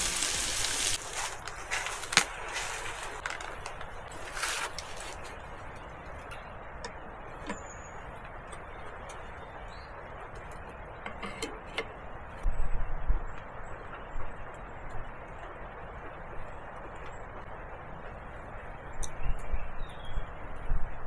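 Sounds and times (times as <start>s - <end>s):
campfire crackling and popping: 0.0s - 9.2s
low fire hiss: 0.0s - 21.0s.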